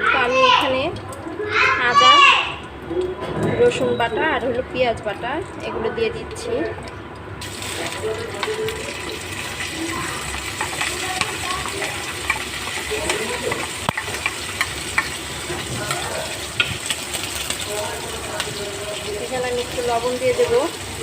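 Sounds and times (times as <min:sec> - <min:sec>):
paste sizzling in hot oil: 0:07.4 - 0:21.0.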